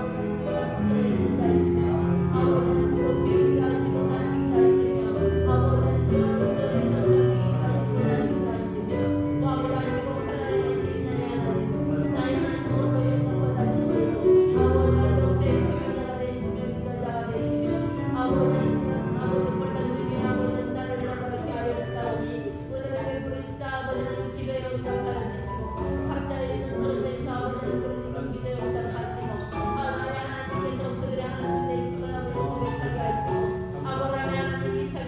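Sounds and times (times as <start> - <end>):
keyboard chords with deep bass: 0.0 - 21.3.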